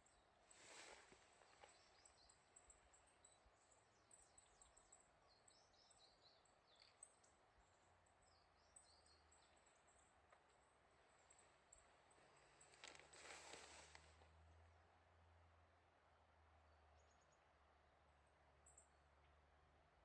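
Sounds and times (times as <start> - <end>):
soft hiss: 0.0 - 4.7, 5.5 - 14.8
small birds chirping: 0.0 - 14.2, 16.6 - 19.4.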